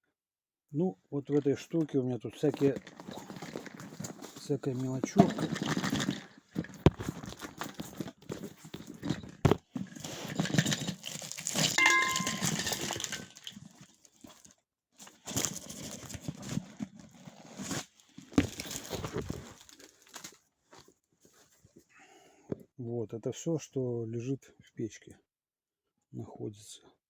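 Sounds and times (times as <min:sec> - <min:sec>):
rummaging through small items: 0:01.4 - 0:21.9.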